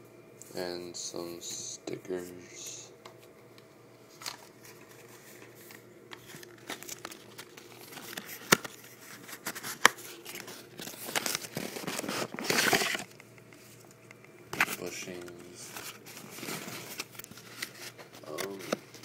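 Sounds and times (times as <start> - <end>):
packaging crinkling: 4.1 - 13.3, 14.6 - 19.0.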